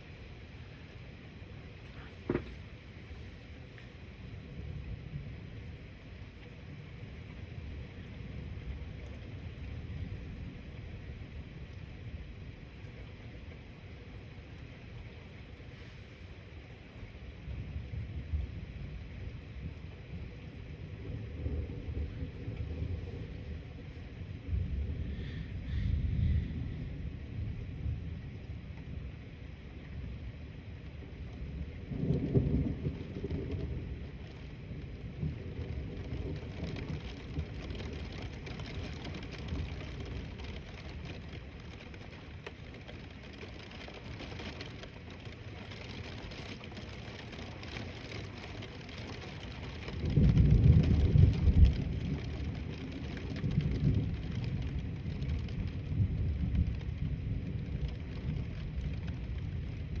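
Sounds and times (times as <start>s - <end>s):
rain hissing: 0.0s - 60.0s
thunder rumbling: 17.1s - 60.0s.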